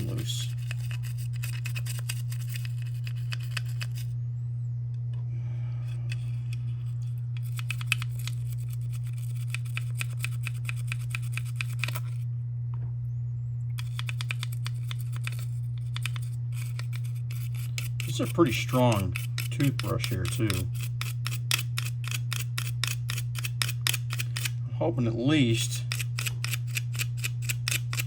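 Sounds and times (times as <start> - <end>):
toothbrush scrubbing: 0.0 - 4.1, 7.4 - 12.2, 13.8 - 24.6, 25.8 - 28.0
steady low hum: 0.0 - 28.0.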